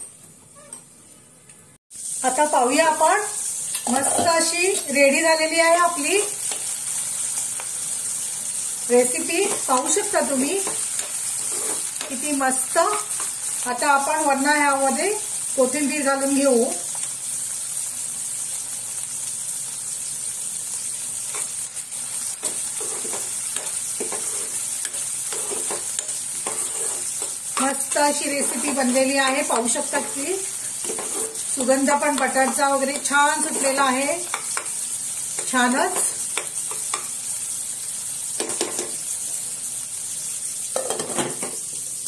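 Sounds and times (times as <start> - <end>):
food sizzling in a pan: 1.9 - 42.0
spoon scraping a pan: 3.8 - 4.9, 9.3 - 12.2, 22.2 - 37.2.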